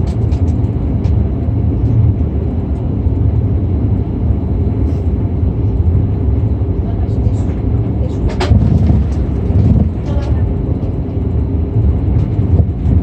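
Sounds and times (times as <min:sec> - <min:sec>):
light rattles and clicks: 0:00.0 - 0:02.9, 0:07.0 - 0:11.3, 0:11.9 - 0:13.0
aircraft rolling low rumble: 0:00.0 - 0:13.0.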